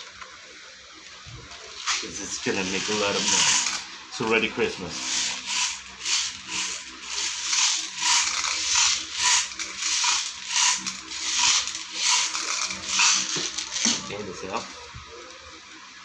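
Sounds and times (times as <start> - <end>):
magazine ratcheting rattle: 5.2 - 14.0.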